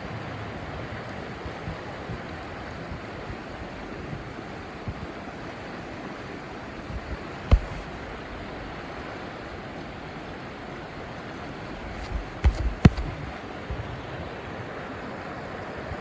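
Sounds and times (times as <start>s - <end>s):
river rapids rushing: 0.4s - 16.0s
sharp knock: 7.5s - 8.0s, 12.0s - 13.2s.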